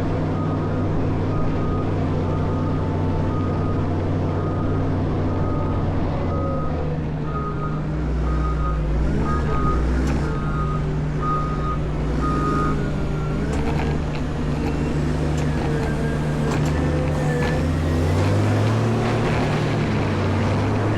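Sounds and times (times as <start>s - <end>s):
diesel engine running: 0.0s - 20.9s
reversing alarm beeping: 0.4s - 13.6s.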